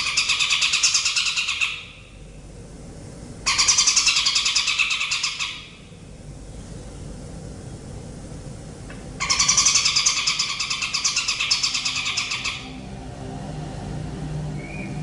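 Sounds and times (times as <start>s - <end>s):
bird buzzy pulsed trill: 9.2s - 15.0s.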